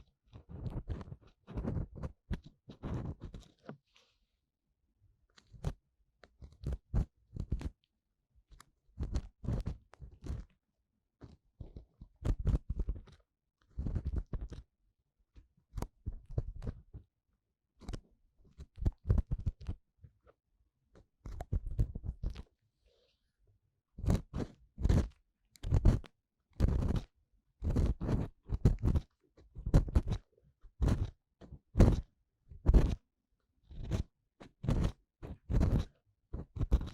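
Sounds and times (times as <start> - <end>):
crackling scratches in microphone ear: 0.4 - 3.8, 6.4 - 7.8, 9.0 - 10.5, 11.2 - 14.7, 15.8 - 16.9, 18.6 - 19.8, 21.3 - 22.5, 24.0 - 33.0, 33.7 - 36.9.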